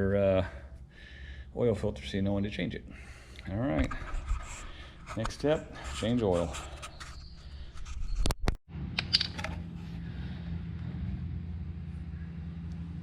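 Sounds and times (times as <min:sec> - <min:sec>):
low mechanical hum: 0:08.7 - 0:13.0.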